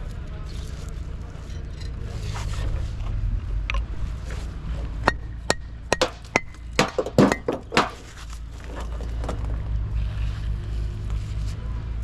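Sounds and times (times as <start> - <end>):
sharp metallic knocks: 5.0 - 8.1.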